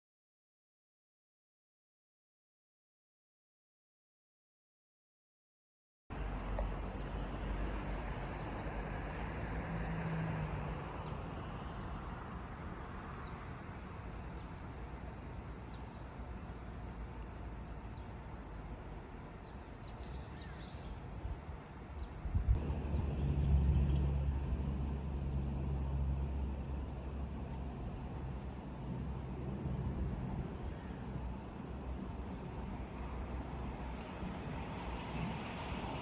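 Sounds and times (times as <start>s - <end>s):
cicadas droning: 6.1s - 36.0s
low rumble: 22.4s - 31.2s.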